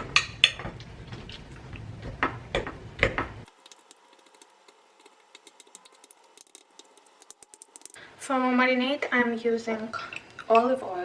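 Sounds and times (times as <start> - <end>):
faint ticking: 3.5 - 8.0
fork pricking raw chicken: 3.5 - 8.0
fork tines clicking on dish: 3.5 - 8.0.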